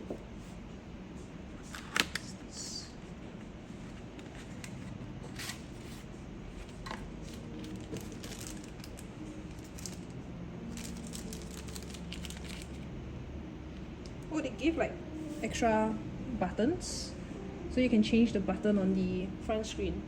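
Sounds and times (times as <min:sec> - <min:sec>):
low room hum: 0:00.0 - 0:20.0
packaging crinkling and rustling: 0:04.0 - 0:10.1, 0:10.7 - 0:12.8.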